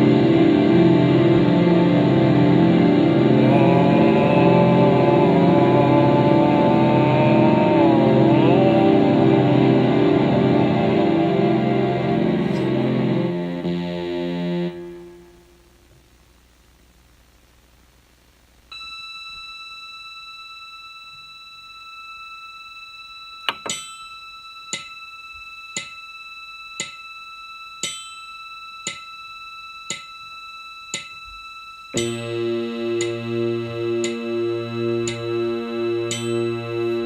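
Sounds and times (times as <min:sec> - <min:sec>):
high held electronic tone: 0:00.0 - 0:15.6, 0:19.5 - 0:37.0
pulsing chord with low throb: 0:00.0 - 0:15.7, 0:32.0 - 0:37.0
clock-like ticks: 0:24.7 - 0:25.0, 0:25.8 - 0:26.0, 0:26.8 - 0:27.0, 0:27.8 - 0:29.1, 0:29.9 - 0:30.1, 0:30.9 - 0:31.2, 0:33.0 - 0:33.2, 0:34.0 - 0:34.2, 0:36.1 - 0:36.5.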